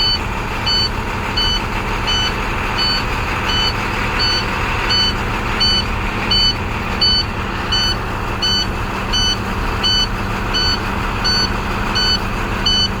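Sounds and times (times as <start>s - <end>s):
bus engine idling: 0.0s - 13.0s
high electronic warning beep: 0.0s - 13.0s.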